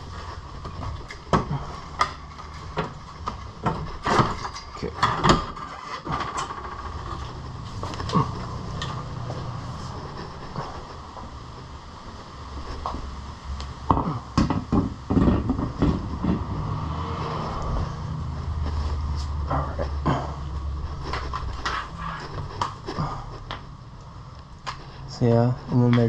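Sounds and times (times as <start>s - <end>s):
steady low hum: 0.0s - 26.0s
hand tools clicking and clanking: 0.1s - 10.9s.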